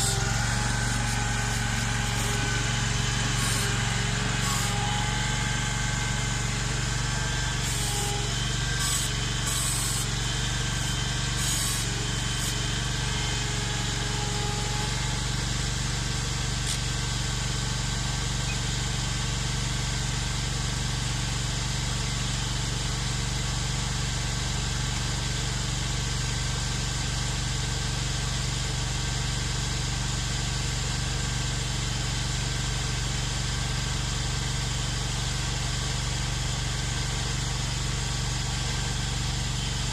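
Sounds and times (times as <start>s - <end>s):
tractor engine running: 0.0s - 25.7s.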